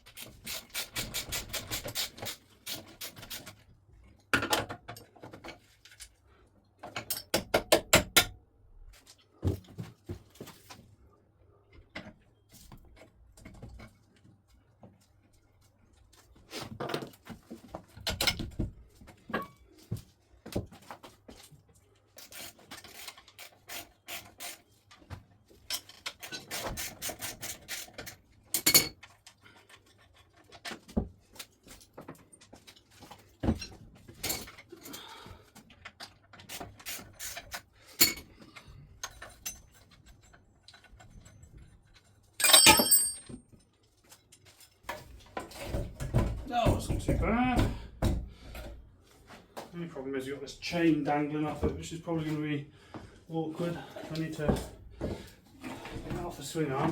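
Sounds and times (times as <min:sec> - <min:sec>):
tools clinking on metal parts: 0:06.8 - 0:08.3, 0:25.6 - 0:30.4, 0:35.9 - 0:38.3, 0:39.0 - 0:44.8
ringing metal clatter: 0:42.4 - 0:43.5.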